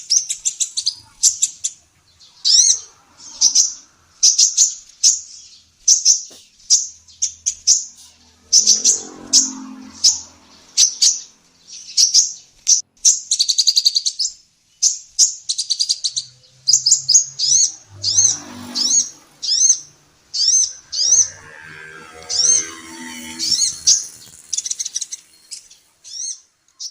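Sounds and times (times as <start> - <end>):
sunbird chirping: 0.0 - 26.9
bird rattling trill: 16.8 - 26.4.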